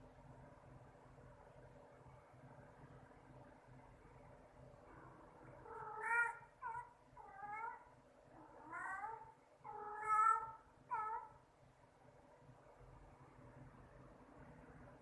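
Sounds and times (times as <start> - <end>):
cat meowing: 5.6 - 11.4.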